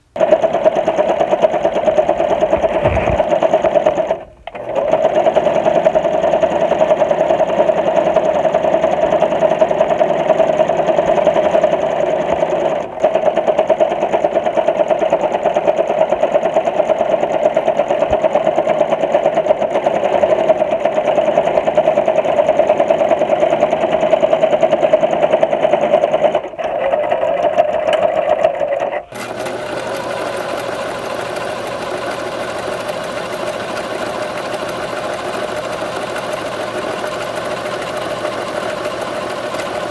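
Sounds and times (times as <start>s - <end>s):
sewing machine stitching: 0.1s - 39.9s.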